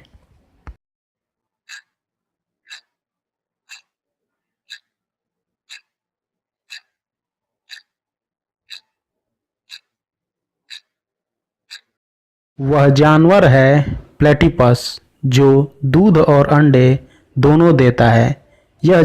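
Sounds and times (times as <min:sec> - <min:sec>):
clock ticking: 0:01.7 - 0:02.0, 0:02.7 - 0:02.9, 0:03.7 - 0:04.0, 0:04.7 - 0:05.0, 0:05.7 - 0:06.0, 0:06.7 - 0:07.0, 0:07.7 - 0:08.0, 0:08.7 - 0:08.9, 0:09.7 - 0:10.0, 0:10.7 - 0:10.9, 0:11.7 - 0:11.9.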